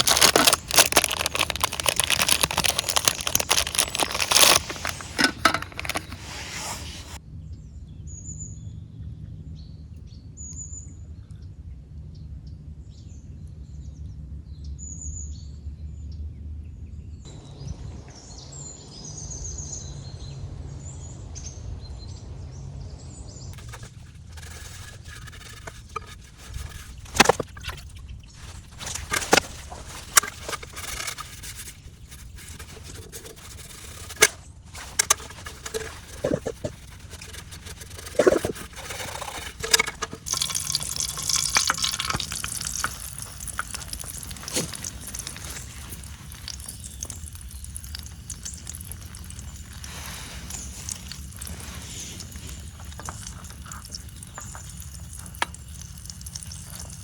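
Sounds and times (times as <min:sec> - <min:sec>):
small birds chirping: 0:22.8 - 0:57.0.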